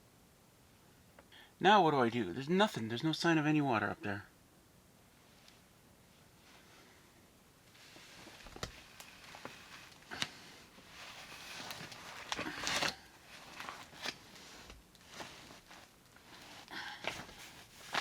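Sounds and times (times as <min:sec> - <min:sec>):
insulation rustling and crinkling: 0:05.1 - 0:18.0.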